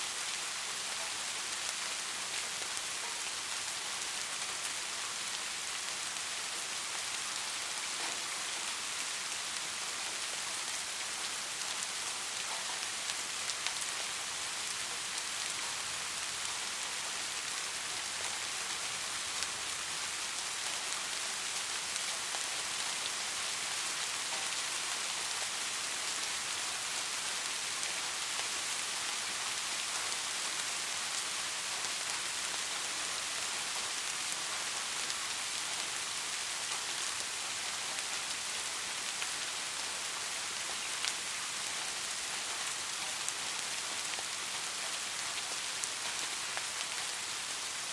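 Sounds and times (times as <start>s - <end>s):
rain pattering on a surface: 0.0s - 47.9s.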